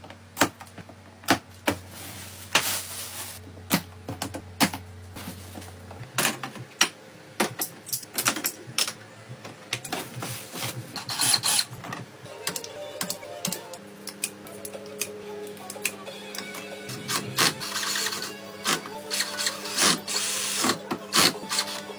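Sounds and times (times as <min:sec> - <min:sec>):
low steady hum: 0:00.0 - 0:21.9
tools clicking and clinking: 0:06.2 - 0:09.0.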